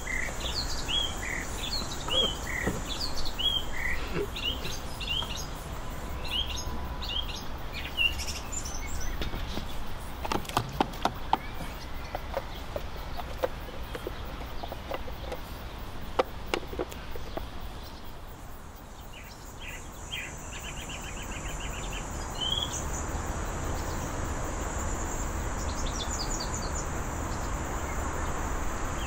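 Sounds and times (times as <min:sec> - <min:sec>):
songbirds chirping: 0:00.0 - 0:29.0
steady high hiss: 0:00.0 - 0:29.0
sharp knocks and clicks: 0:09.1 - 0:17.5.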